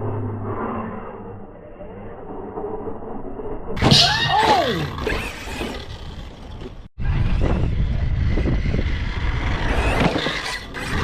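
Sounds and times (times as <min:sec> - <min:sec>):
steady low rumble: 0:00.0 - 0:03.8.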